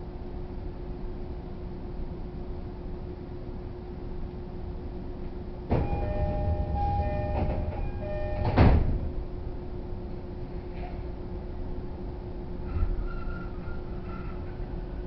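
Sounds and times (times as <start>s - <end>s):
train humming: 4.9s - 15.0s
doors thumping shut: 5.7s - 9.0s
train doors sliding: 5.7s - 9.2s
electronic door chime: 5.8s - 8.7s.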